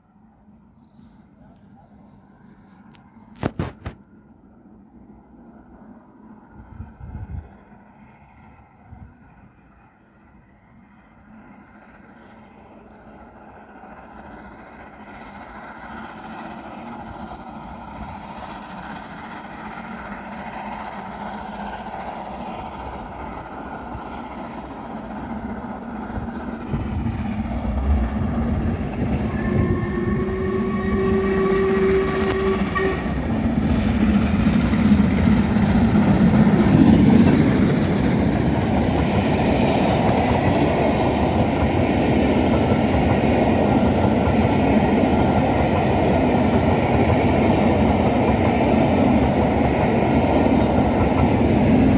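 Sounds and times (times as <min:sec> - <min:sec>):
train approaching: 0:00.0 - 0:51.9
train whistle: 0:29.2 - 0:33.4.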